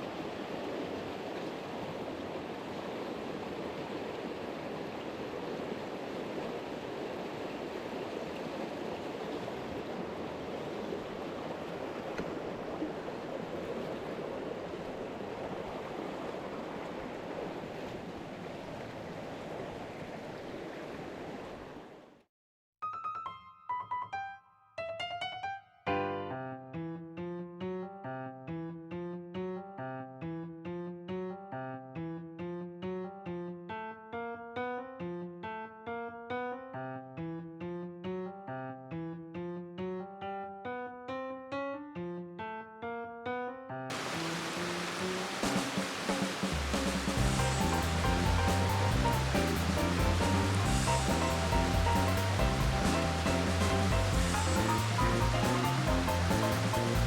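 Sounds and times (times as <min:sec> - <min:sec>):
stream water rushing: 0:00.0 - 0:22.1, 0:43.9 - 0:57.0.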